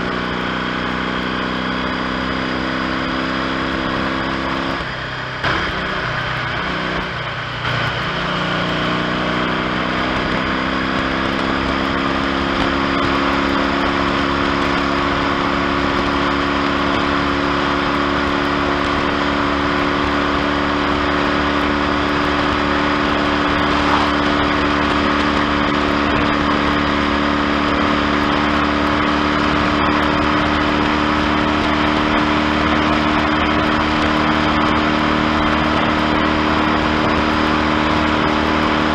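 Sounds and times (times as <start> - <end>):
motorcycle engine: 0.0 - 38.9
steady rush of noise: 4.8 - 9.6, 13.1 - 38.9.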